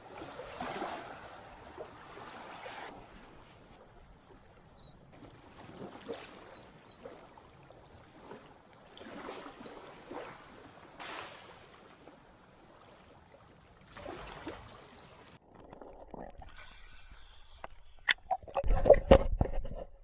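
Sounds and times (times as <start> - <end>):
small waves washing on sand: 0.0 - 15.4.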